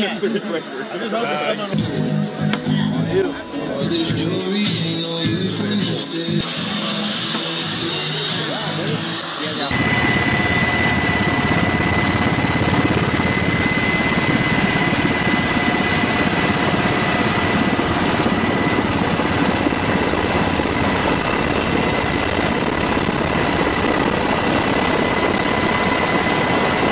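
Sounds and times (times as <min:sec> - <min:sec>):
turbine engine whine and rumble: 0:06.4 - 0:26.9.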